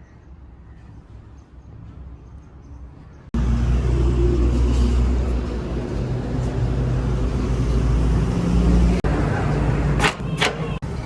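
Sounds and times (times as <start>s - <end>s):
diesel engine running: 3.4s - 10.0s.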